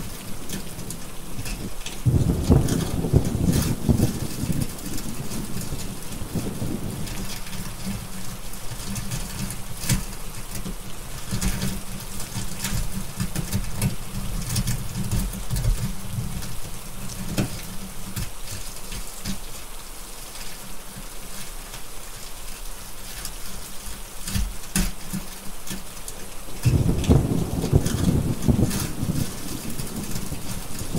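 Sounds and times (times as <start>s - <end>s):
steady rain: 0.0s - 30.9s
wood fire crackling: 0.0s - 30.9s
thunder rumbling: 2.0s - 8.1s, 26.6s - 30.9s.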